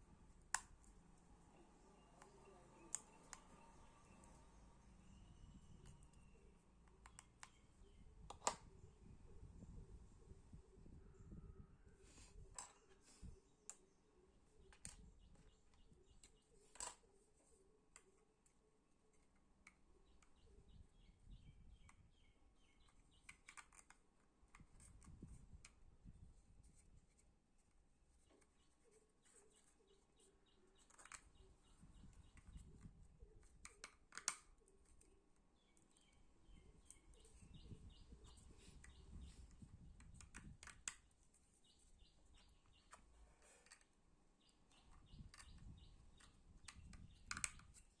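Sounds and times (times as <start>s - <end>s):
faint bird chirping: 0.0s - 48.0s
plastic parts clicking and tapping: 5.6s - 8.8s, 12.5s - 13.0s, 14.6s - 17.1s, 22.7s - 25.8s, 29.2s - 35.1s, 35.7s - 41.2s, 42.1s - 48.0s.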